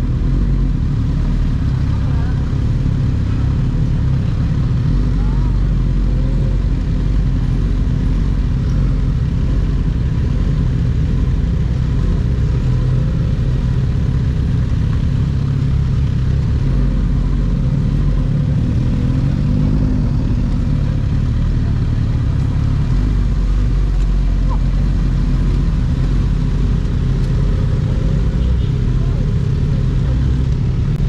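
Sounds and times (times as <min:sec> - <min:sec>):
low wind rumble: 0:00.0 - 0:31.0
motorcycle running steadily: 0:00.0 - 0:31.0.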